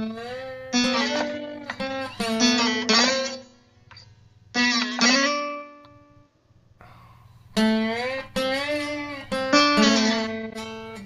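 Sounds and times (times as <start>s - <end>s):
slide guitar gliding notes: 0.0s - 6.2s, 7.6s - 11.0s.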